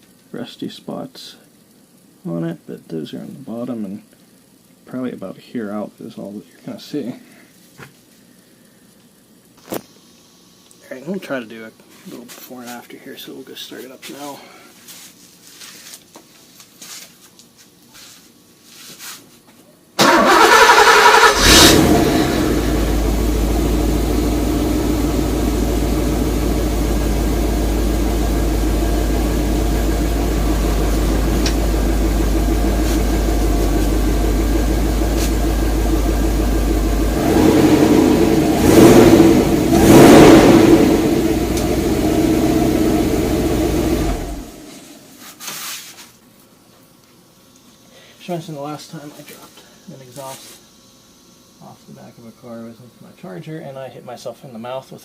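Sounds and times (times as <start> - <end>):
car engine revving: 20.0 - 44.7
car engine starting and idling: 20.0 - 44.9.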